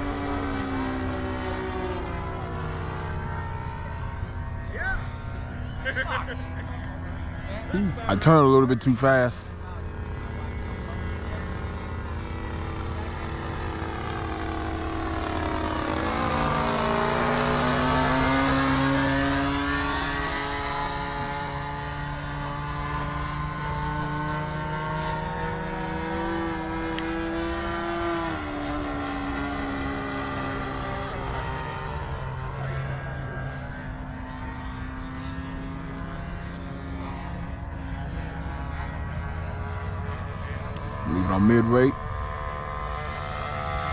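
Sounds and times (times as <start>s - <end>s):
model airplane engine buzzing: 0.0s - 43.9s.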